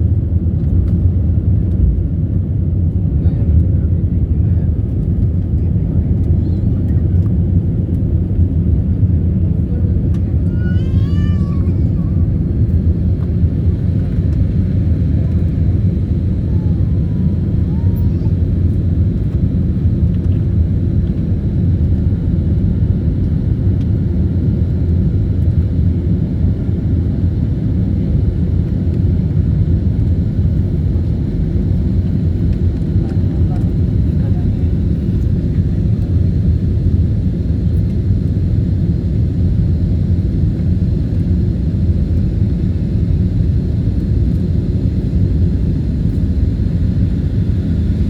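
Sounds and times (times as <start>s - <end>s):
airliner engines rumbling: 0.0s - 48.0s.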